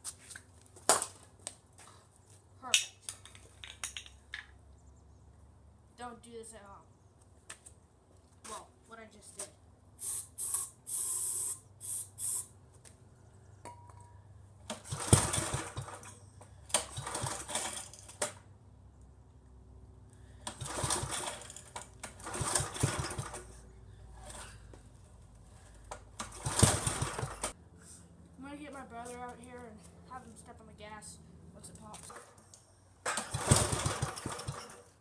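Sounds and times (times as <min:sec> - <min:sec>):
short hissing bursts: 0:10.0 - 0:12.5
engine recoil starter pulls: 0:14.6 - 0:18.4, 0:20.3 - 0:24.7, 0:25.5 - 0:27.6, 0:33.0 - 0:35.0.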